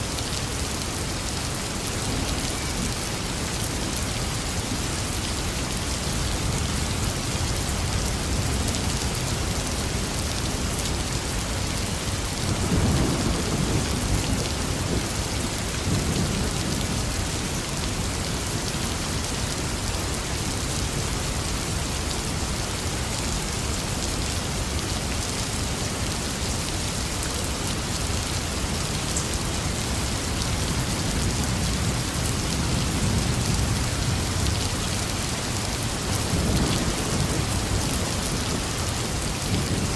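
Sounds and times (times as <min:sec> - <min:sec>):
heavy rain falling: 0:00.0 - 0:39.9
thunder rolling: 0:12.6 - 0:15.1.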